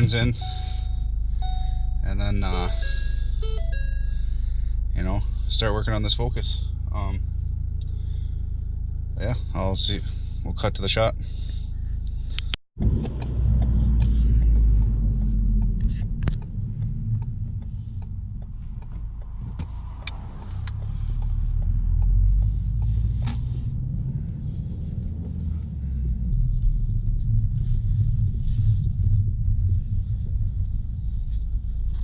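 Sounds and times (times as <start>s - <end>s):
car engine and road noise rumble: 0.0s - 32.0s.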